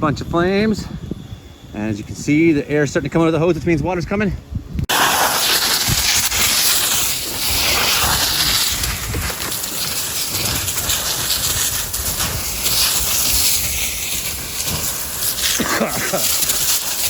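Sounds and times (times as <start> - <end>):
fire hose spraying water: 4.9 - 17.0.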